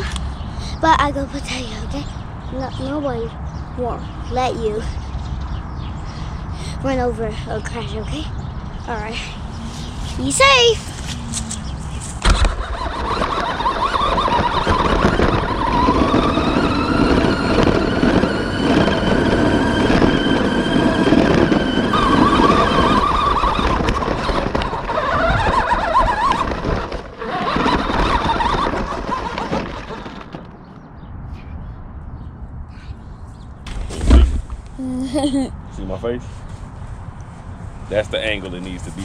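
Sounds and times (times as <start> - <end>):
toy truck rattling over ground: 12.2 - 30.5.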